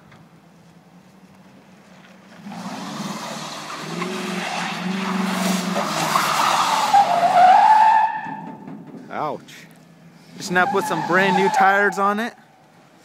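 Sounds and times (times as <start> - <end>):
pickup engine revving: 2.3 - 7.9
tire squeal: 2.4 - 8.7, 10.3 - 12.6.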